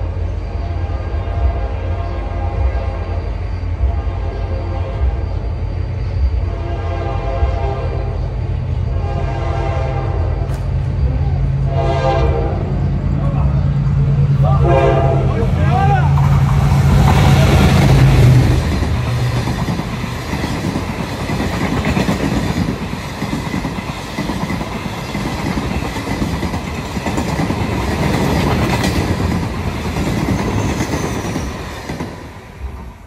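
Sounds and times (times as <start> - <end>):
locomotive engine humming: 0.0 - 33.0
train wheels clattering on rails: 10.4 - 12.3, 15.8 - 33.0.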